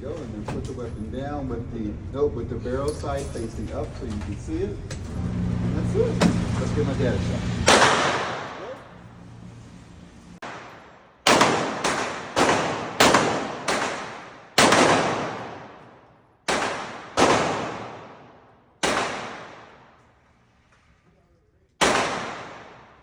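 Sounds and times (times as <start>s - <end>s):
echoing gunshots: 7.6s - 8.8s, 10.4s - 20.0s, 21.8s - 23.0s.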